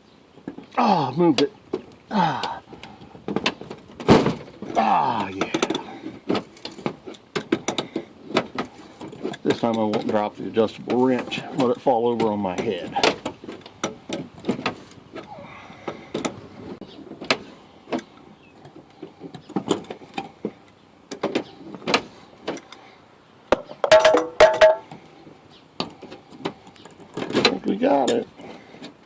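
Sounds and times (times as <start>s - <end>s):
ringing metal clanks: 23.6s - 24.9s.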